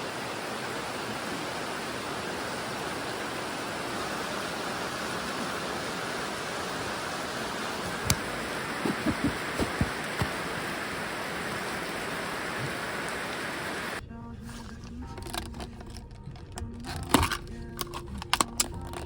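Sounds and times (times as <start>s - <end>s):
water rushing: 0.0s - 14.0s.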